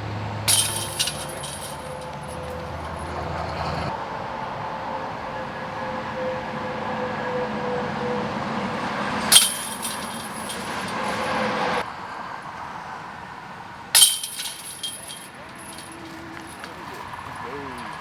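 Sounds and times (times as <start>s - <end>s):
traffic-like rumble: 0.0s - 18.0s
disc striking metal chains: 0.5s - 3.3s, 9.3s - 11.6s, 14.0s - 16.7s.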